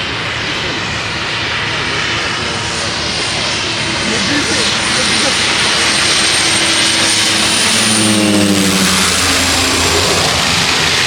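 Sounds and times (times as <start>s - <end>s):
jet engines roaring with whine: 0.0s - 11.0s
low droning tone falling in pitch: 5.9s - 11.0s.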